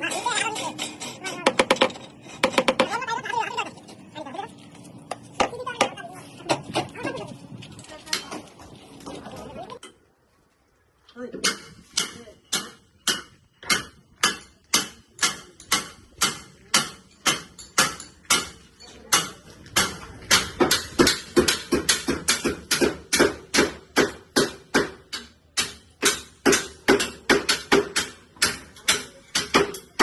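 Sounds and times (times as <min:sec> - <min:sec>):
hammer striking formwork: 0:11.4 - 0:30.0.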